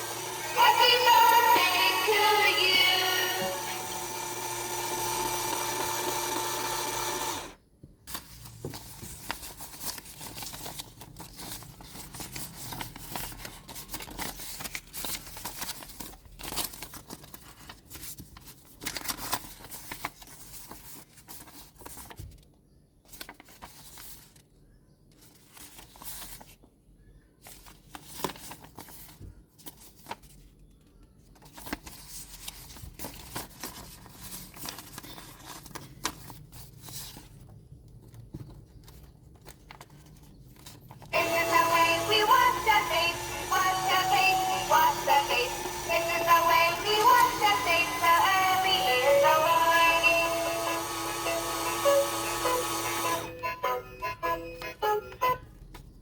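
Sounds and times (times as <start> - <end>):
background music: 0.0 - 5.5, 41.2 - 55.5
packaging crinkling and tearing: 8.1 - 22.5.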